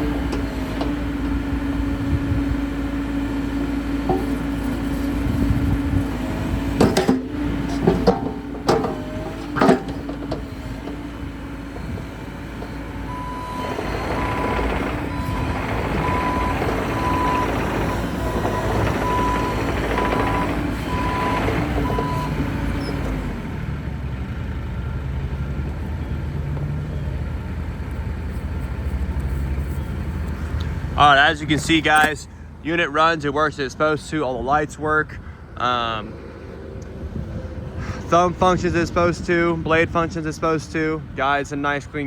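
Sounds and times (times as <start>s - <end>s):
excavator diesel engine running: 0.0s - 42.0s
sharp knocks: 4.1s - 4.6s, 6.8s - 10.5s
travel alarm beeps: 13.0s - 23.0s.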